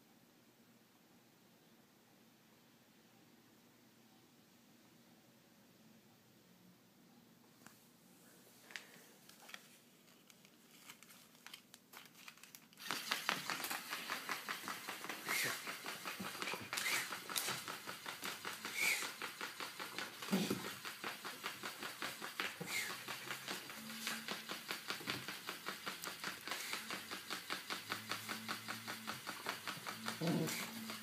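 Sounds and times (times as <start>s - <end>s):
toy bird crinkling and rattling: 10.1s - 31.0s.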